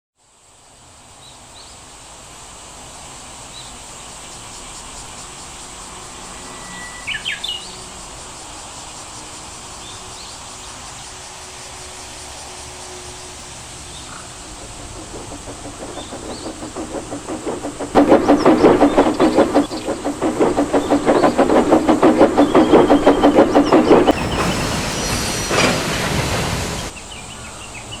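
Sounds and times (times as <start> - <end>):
steady outdoor noise: 0.2 - 28.0
high thin whine: 11.3 - 26.9
birds chirping: 13.4 - 28.0.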